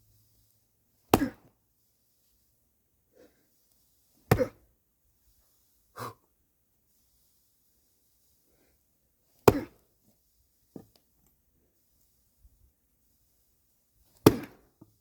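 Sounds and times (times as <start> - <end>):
axe chopping firewood: 1.1 - 1.5, 4.3 - 4.6, 9.4 - 9.8, 14.2 - 14.9.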